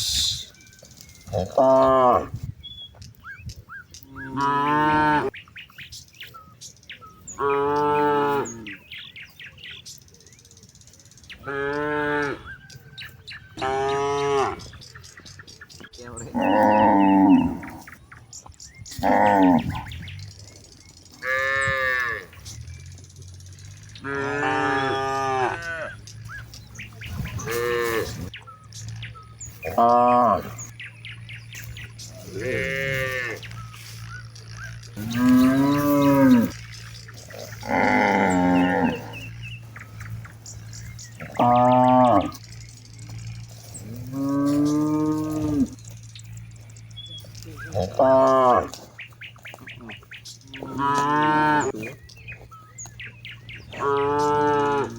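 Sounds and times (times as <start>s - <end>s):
cattle mooing: 1.3s - 2.4s, 4.1s - 5.3s, 7.3s - 8.8s, 13.6s - 14.8s, 16.2s - 18.0s, 18.9s - 20.0s, 21.2s - 22.4s, 23.9s - 28.3s, 29.6s - 30.7s, 32.1s - 33.7s, 34.9s - 46.6s, 47.4s - 48.9s, 49.8s - 52.1s, 53.6s - 54.9s.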